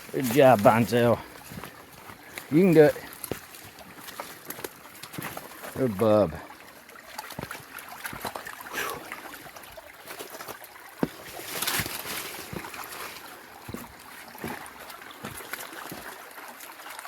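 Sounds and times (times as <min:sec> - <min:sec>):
movement through brush: 0:00.0 - 0:06.0, 0:10.0 - 0:16.2
creek trickling: 0:00.0 - 0:17.0.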